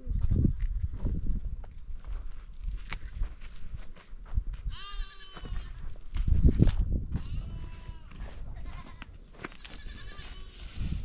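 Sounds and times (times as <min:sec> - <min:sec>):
goats bleating: 0:04.7 - 0:05.8, 0:07.2 - 0:10.8.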